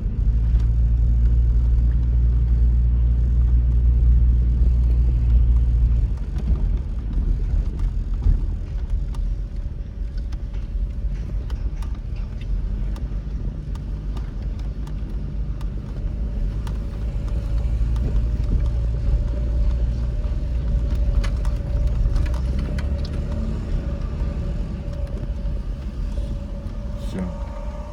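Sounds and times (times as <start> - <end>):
road vehicle rumble: 0.0 - 27.9
thin steady tone: 23.3 - 27.9.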